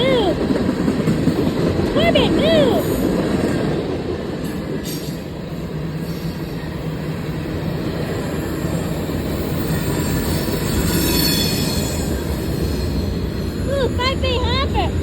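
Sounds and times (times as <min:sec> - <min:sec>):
train wheels rumbling on rail: 0:00.0 - 0:15.0
high wheel squeal: 0:08.2 - 0:14.0.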